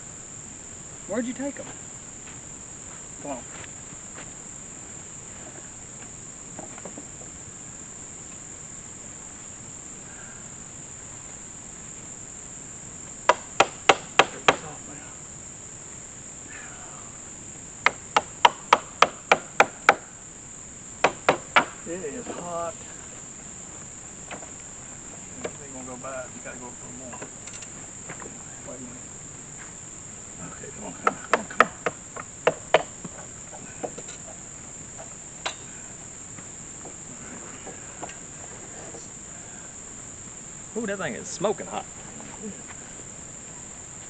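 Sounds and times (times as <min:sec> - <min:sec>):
crickets chirping: 0:00.0 - 0:44.0
insects buzzing: 0:00.0 - 0:44.0
sharp knocks: 0:13.2 - 0:14.6, 0:17.8 - 0:20.1, 0:21.0 - 0:22.4, 0:31.0 - 0:34.4.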